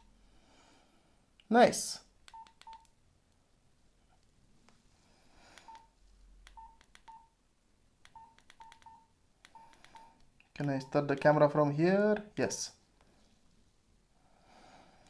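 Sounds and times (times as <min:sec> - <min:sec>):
phone keypad clicks: 0:02.3 - 0:02.9, 0:05.6 - 0:07.3, 0:08.0 - 0:10.9
short keypad beeps: 0:02.3 - 0:02.9, 0:05.7 - 0:05.9, 0:06.6 - 0:07.3, 0:08.1 - 0:10.2.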